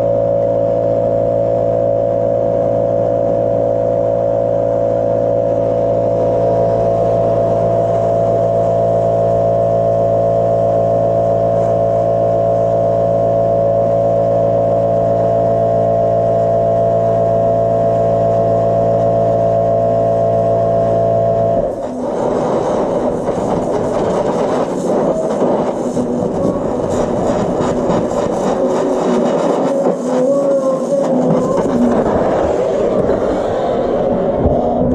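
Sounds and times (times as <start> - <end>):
machine humming and whining: 0.0 - 34.9
rough crackling noise: 21.4 - 34.9.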